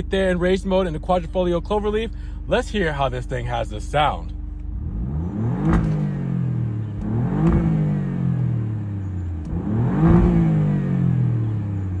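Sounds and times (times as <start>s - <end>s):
car engine revving: 3.8s - 12.0s.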